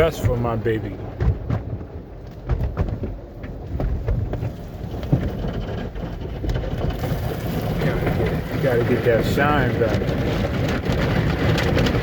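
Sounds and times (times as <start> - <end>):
water spraying onto car: 6.7 - 12.0.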